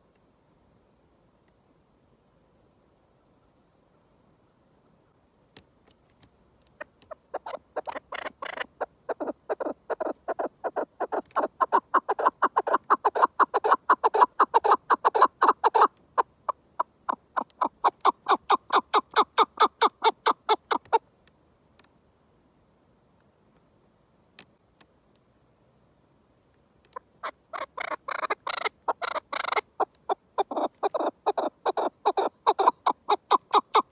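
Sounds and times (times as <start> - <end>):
partridge rapid chuck calls: 6.7 - 21.0, 26.9 - 33.9.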